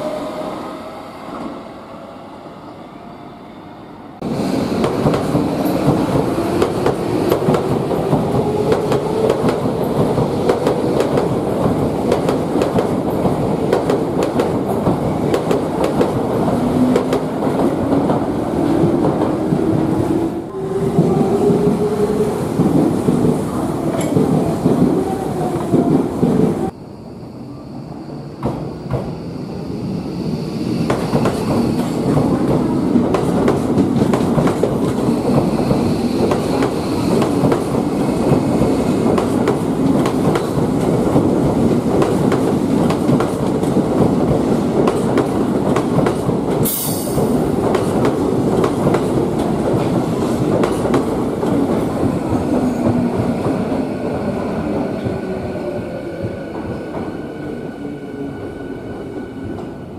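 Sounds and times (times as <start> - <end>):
electric train rumbling: 0.0 - 59.9
train wheels clacking over points: 44.8 - 53.1.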